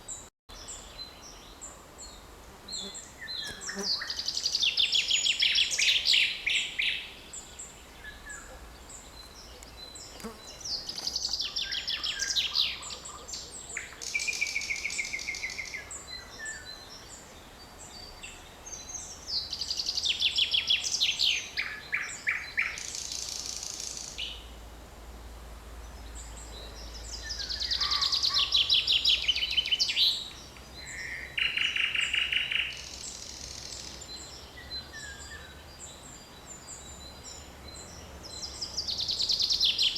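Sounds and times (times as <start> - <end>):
songbirds trilling: 25.8 - 39.9.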